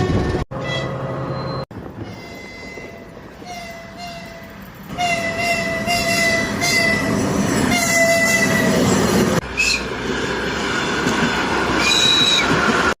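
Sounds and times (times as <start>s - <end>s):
train horn blasts: 0.0s - 1.2s, 2.0s - 8.8s
high-pitched train whistle: 0.0s - 7.1s, 7.7s - 8.8s, 9.5s - 9.9s, 11.8s - 12.6s
moving train noise: 0.0s - 13.0s.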